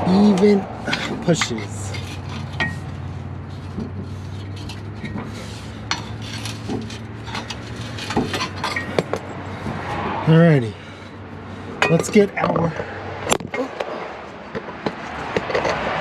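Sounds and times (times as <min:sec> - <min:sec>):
metal tools clinking and scraping: 0:00.1 - 0:09.7, 0:11.8 - 0:13.8.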